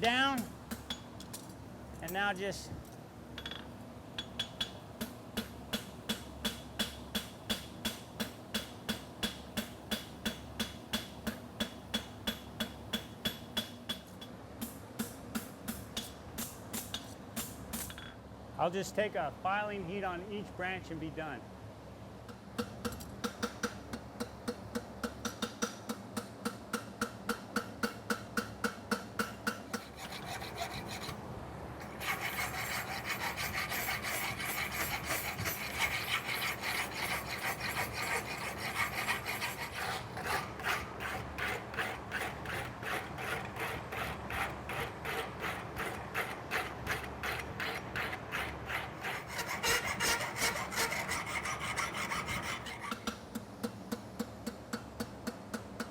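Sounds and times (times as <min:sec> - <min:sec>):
file strokes on steel: 0:29.7 - 0:31.2, 0:31.8 - 0:53.1.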